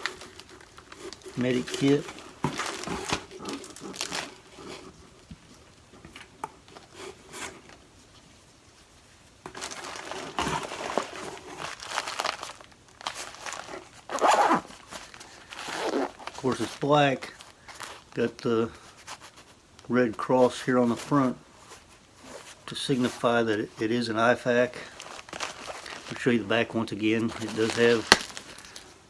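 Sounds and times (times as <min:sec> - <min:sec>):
plastic packaging crinkling: 0:00.0 - 0:04.7, 0:09.5 - 0:19.9, 0:24.4 - 0:29.0.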